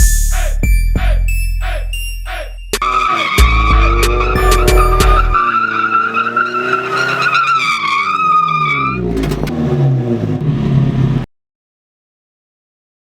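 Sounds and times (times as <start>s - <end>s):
tires squealing: 2.8s - 11.2s
truck engine revving: 2.8s - 11.3s.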